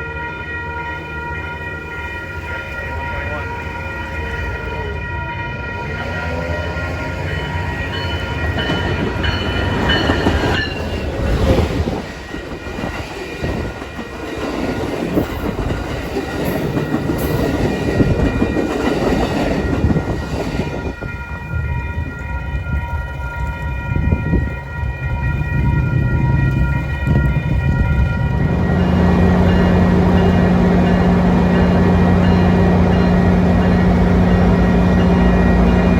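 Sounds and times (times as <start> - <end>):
train rumble and wheel noise: 0.0 - 35.9
train horn: 25.1 - 35.9.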